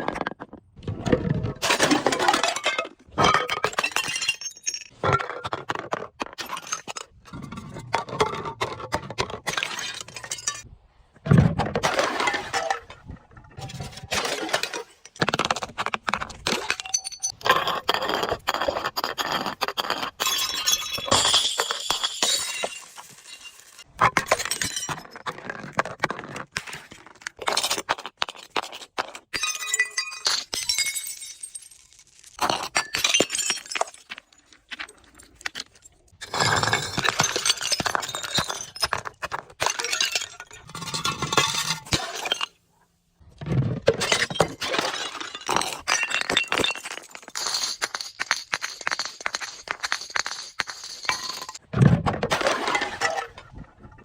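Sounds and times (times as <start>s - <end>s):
glass bottles breaking: 1.6s - 5.3s, 9.5s - 10.7s, 20.2s - 25.3s, 29.3s - 34.2s, 36.2s - 42.6s, 43.9s - 51.6s.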